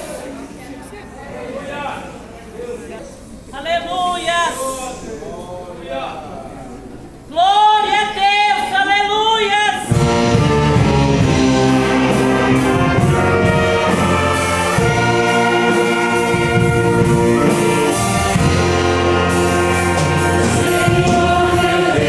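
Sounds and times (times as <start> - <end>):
brass orchestra playing a hymn: 9.9 - 22.0.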